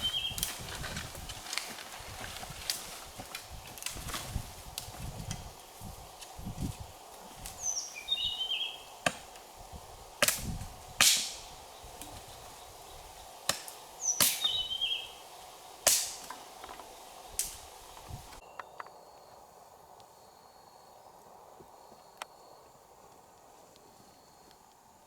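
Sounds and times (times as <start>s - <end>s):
bird chirping call: 0.0s - 0.4s, 7.6s - 8.9s, 14.0s - 15.2s
faint insect drone: 0.0s - 25.0s
chopping strikes on wood: 9.0s - 9.3s, 10.2s - 11.4s, 13.5s - 14.5s, 15.9s - 16.4s.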